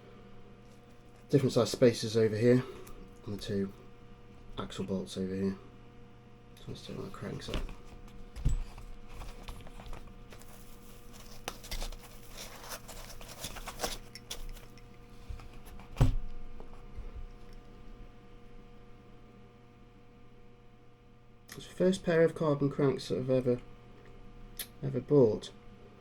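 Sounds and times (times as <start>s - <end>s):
packaging rustling and tearing: 7.4s - 14.8s.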